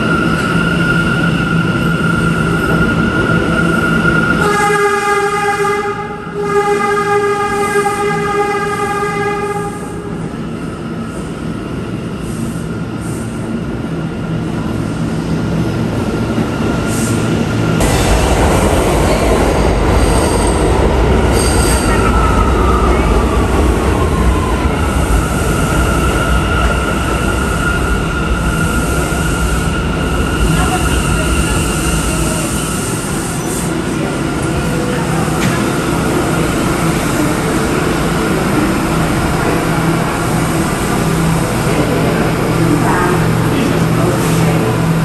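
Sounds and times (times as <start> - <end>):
subway train running on tracks: 0.0 - 45.0
train rumbling past: 0.0 - 45.0
train horn blast: 4.4 - 10.1.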